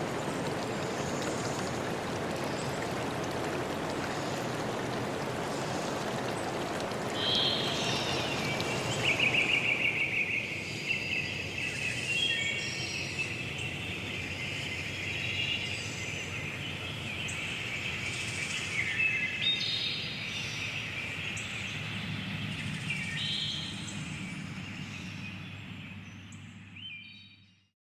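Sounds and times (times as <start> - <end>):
stream rushing: 0.0 - 20.4
songbirds singing and chirping: 5.5 - 27.5.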